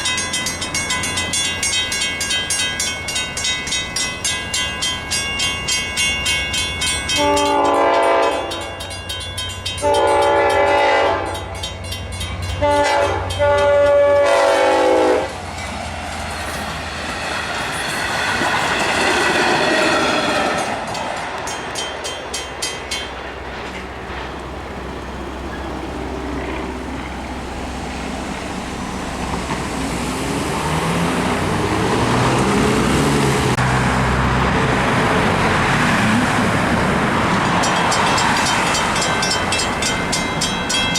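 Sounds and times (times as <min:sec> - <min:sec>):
train air horn blasts: 0:07.1 - 0:08.7, 0:09.8 - 0:11.6, 0:12.6 - 0:15.4
train wheels clattering over rails: 0:15.4 - 0:27.2, 0:34.4 - 0:40.9.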